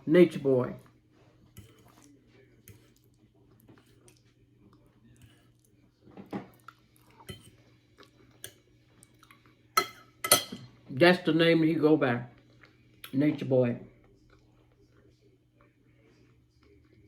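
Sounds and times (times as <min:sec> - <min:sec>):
chewing and lip-smacking: 0:01.4 - 0:05.8, 0:06.5 - 0:09.6, 0:13.9 - 0:17.0.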